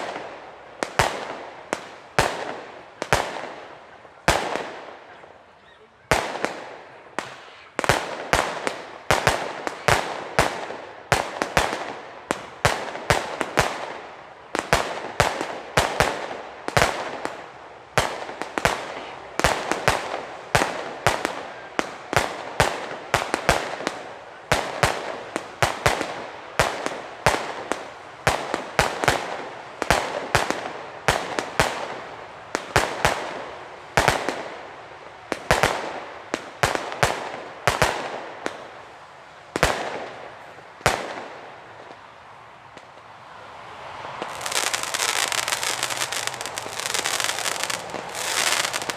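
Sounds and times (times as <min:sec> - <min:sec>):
firework battery shots and bangs: 0:44.2 - 0:48.9.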